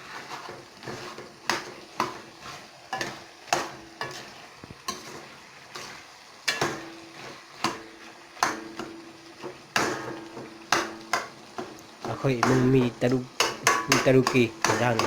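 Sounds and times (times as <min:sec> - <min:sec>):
faint sizzle: 0:00.0 - 0:15.0
metal spoon knocking on pot: 0:12.4 - 0:15.0.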